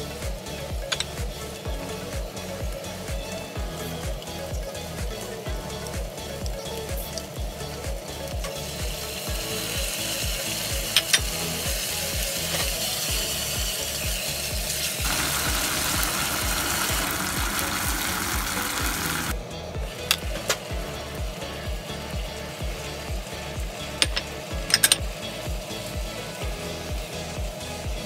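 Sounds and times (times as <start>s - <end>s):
background music with a beat: 0.0s - 28.0s
chicken sizzling in a saucepan: 8.6s - 19.4s.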